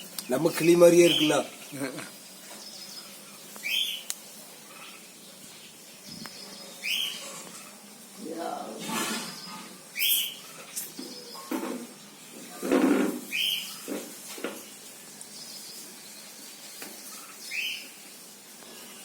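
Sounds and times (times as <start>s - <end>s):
small parrots chirping: 0.0s - 7.8s, 9.2s - 11.6s, 13.2s - 14.8s, 16.8s - 18.0s.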